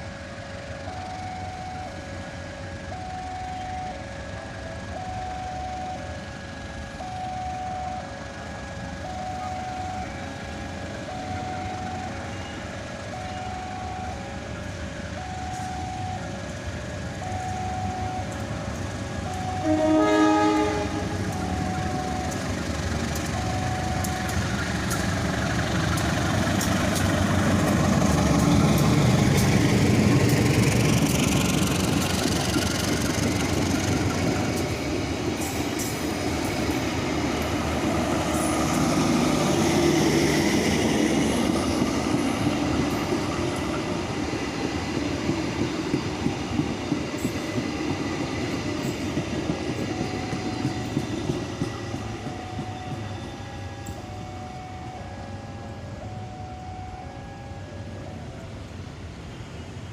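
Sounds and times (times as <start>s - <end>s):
train rumbling past: 0.0s - 59.9s
wheels clicking over rail joints: 21.0s - 39.0s, 41.4s - 54.0s.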